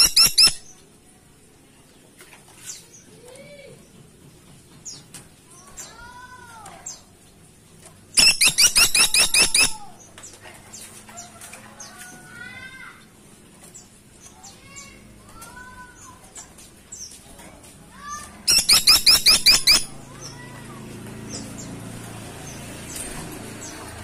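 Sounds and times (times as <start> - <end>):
woodpecker rapid sharp notes: 0.0 - 0.6, 8.2 - 9.9, 18.5 - 20.1.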